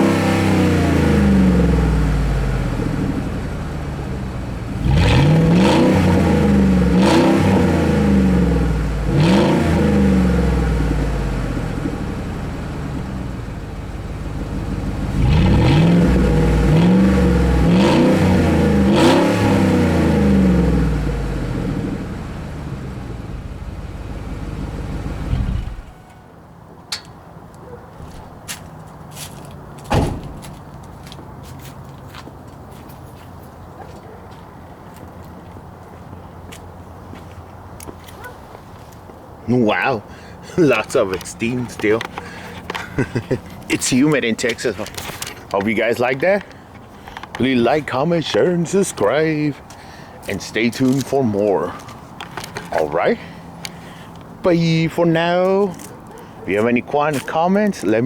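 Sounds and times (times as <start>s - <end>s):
engine revving: 0.0s - 26.1s.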